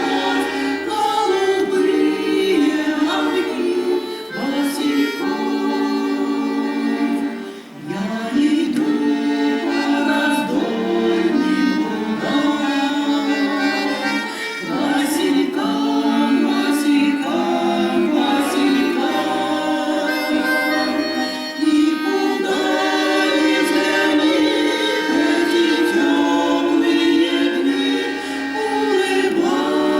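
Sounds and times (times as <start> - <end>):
group singing in chorus: 0.0 - 29.9
instrumental accompaniment: 0.0 - 29.9.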